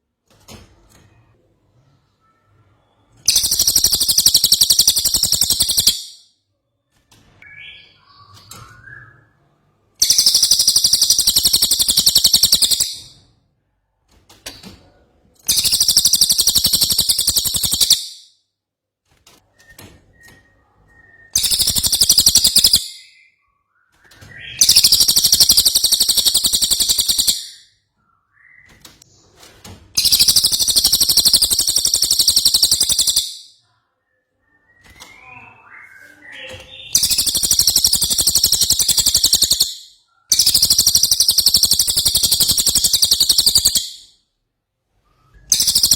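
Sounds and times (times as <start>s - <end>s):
faint bird chirps: 0.9s - 13.4s, 14.5s - 18.3s, 19.5s - 44.4s, 45.0s - 45.9s
bird chattering trills: 3.3s - 6.1s, 10.0s - 13.1s, 15.5s - 18.1s, 21.4s - 22.9s, 24.6s - 27.6s, 30.0s - 33.5s, 36.8s - 44.1s, 45.5s - 45.9s.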